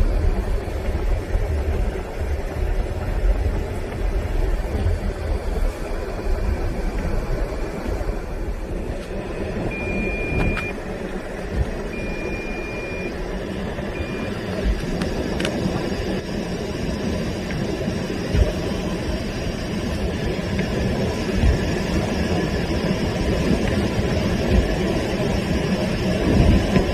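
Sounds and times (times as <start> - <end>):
car engine and tyre rumble: 0.0 - 26.9
short high beeps: 9.3 - 10.8, 12.0 - 13.2, 14.0 - 14.4.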